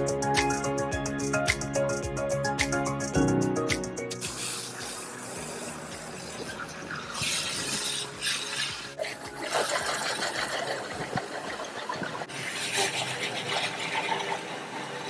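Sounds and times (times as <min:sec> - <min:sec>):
water spraying onto car: 0:04.2 - 0:15.0.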